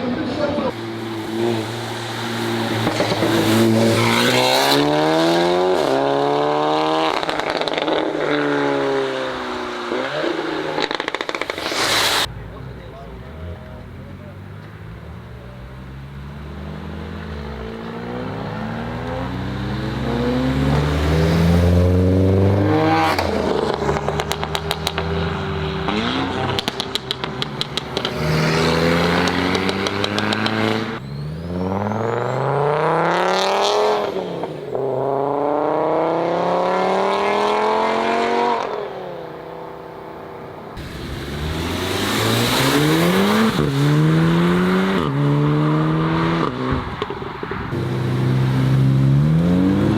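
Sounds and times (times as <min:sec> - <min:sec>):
car engine accelerating hard: 0:00.0 - 0:38.9, 0:40.7 - 0:49.9
rapid stuttering crackle: 0:10.8 - 0:12.3.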